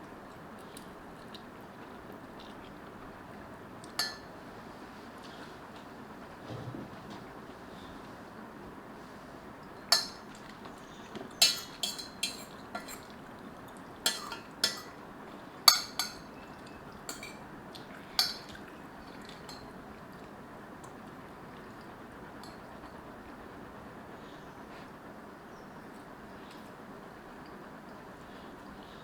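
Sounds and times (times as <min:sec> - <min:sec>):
metal utensils clinking on dish: 0:04.0 - 0:04.3, 0:09.9 - 0:10.5, 0:11.3 - 0:13.1, 0:14.0 - 0:15.0, 0:15.7 - 0:17.4, 0:18.1 - 0:18.6.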